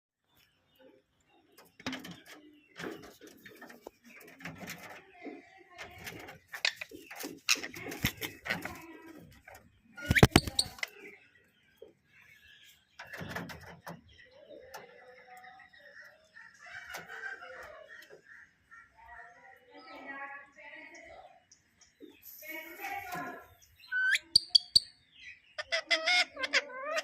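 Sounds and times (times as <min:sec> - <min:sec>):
parakeet calling and chattering: 0:06.4 - 0:08.8, 0:10.0 - 0:11.2, 0:23.8 - 0:27.0
sharp clicks: 0:10.0 - 0:11.0.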